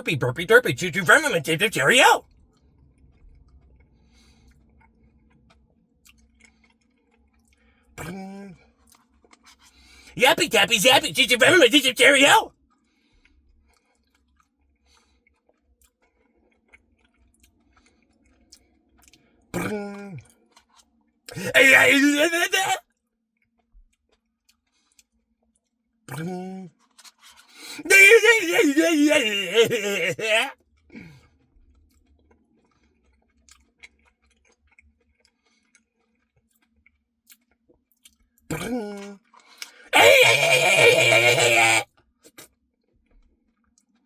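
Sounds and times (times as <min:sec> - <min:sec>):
chewing ice cream: 0:02.4 - 0:10.0, 0:13.2 - 0:22.6, 0:23.6 - 0:44.0
close-up chewing: 0:04.4 - 0:07.6, 0:31.7 - 0:36.7.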